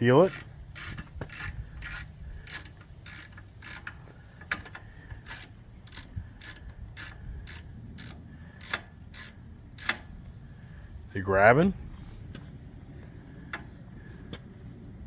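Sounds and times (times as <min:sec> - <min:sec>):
ratchet wrench clicking: 0:00.0 - 0:10.1.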